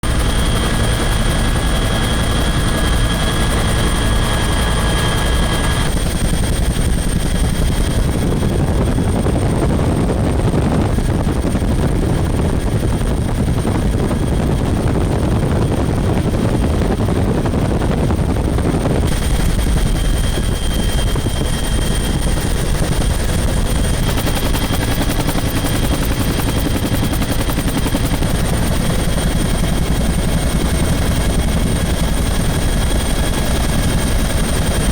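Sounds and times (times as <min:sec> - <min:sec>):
helicopter rotor chop: 0:00.0 - 0:34.9
turbine whine: 0:00.0 - 0:34.9.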